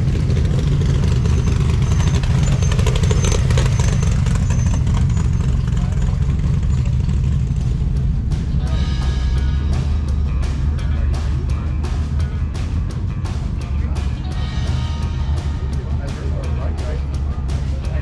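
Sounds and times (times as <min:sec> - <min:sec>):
car engine idling: 0:00.0 - 0:18.0
background music: 0:07.2 - 0:18.0
background voices: 0:08.5 - 0:18.0.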